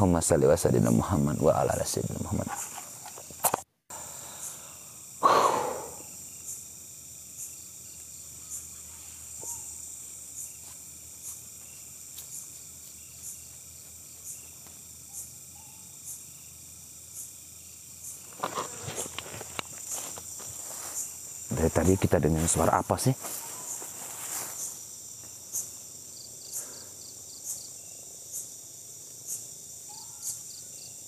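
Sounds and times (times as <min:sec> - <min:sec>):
night insects chirping: 0:00.0 - 0:31.0
sharp breathy exhale: 0:03.9 - 0:06.1.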